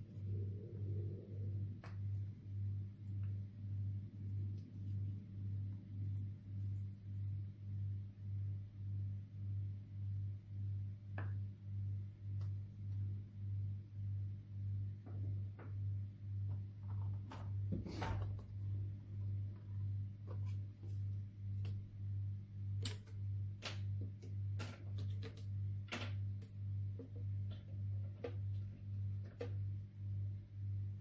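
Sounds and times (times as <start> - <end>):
low pulsing hum: 0.0 - 24.5.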